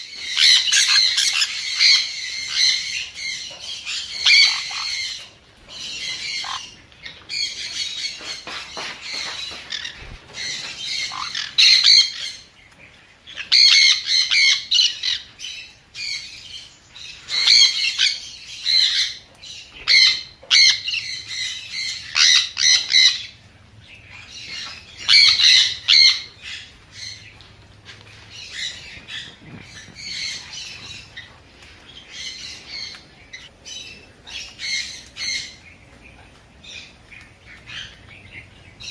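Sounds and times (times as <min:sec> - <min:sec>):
parrot squawking: 0:00.3 - 0:03.0, 0:03.8 - 0:05.2, 0:06.1 - 0:06.8, 0:10.9 - 0:12.3, 0:13.4 - 0:15.2, 0:21.7 - 0:23.3, 0:24.6 - 0:26.7.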